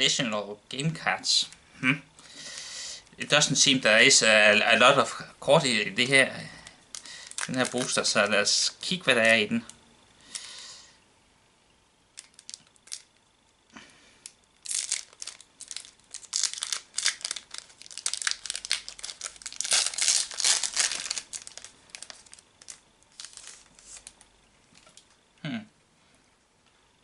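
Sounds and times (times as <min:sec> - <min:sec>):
foil wrapper crinkling: 0:06.6 - 0:09.7, 0:12.2 - 0:13.1, 0:14.2 - 0:25.2
foil wrapper tearing: 0:06.9 - 0:08.3, 0:12.2 - 0:13.1, 0:14.6 - 0:25.1.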